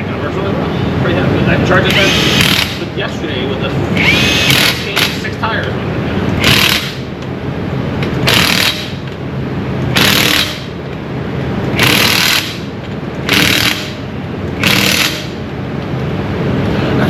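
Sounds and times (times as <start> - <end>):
steady low hum: 0.0 - 17.0
impact wrench bursts: 1.9 - 2.9, 4.0 - 5.3, 6.4 - 7.1, 8.2 - 9.0, 9.9 - 10.8, 11.8 - 15.4.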